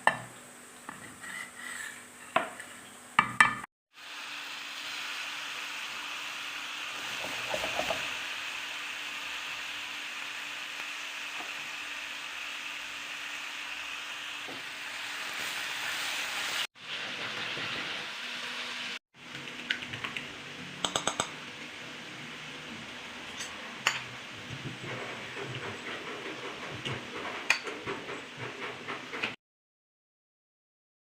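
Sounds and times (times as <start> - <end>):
eggs and sausage sizzling in a pan: 3.9 - 25.6.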